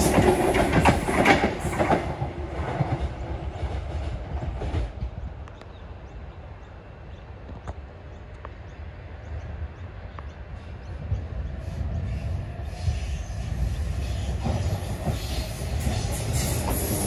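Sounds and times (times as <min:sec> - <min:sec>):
electric train rumble: 0:00.0 - 0:17.0
train wheel squeal: 0:11.6 - 0:17.0.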